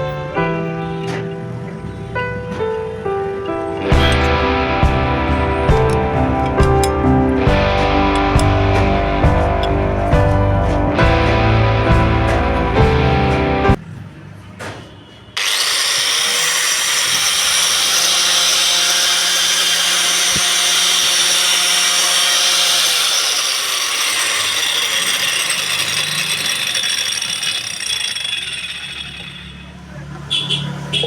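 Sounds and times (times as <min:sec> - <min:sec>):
angle grinder whining: 0:03.5 - 0:13.6, 0:15.4 - 0:30.0.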